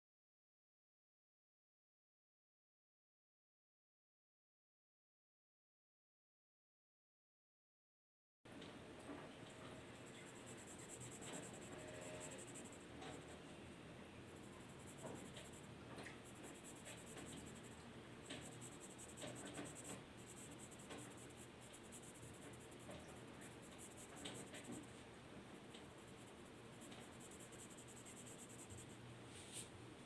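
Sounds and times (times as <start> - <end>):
drawing tool scratching on paper: 9.9 - 13.4, 14.3 - 24.9, 25.8 - 29.0.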